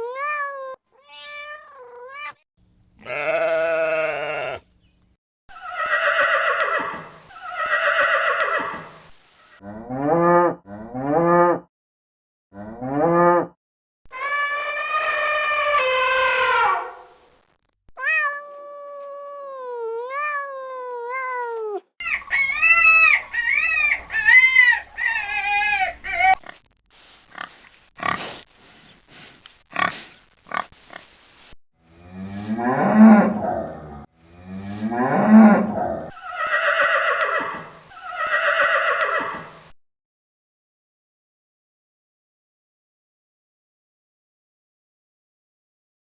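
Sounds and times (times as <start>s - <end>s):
farm animal calls: 3.0s - 5.0s, 22.0s - 26.4s.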